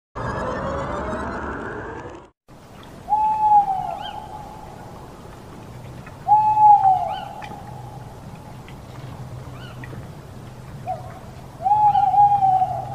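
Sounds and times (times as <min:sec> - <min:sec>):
owl hooting: 0:03.0 - 0:10.0, 0:10.7 - 0:12.9.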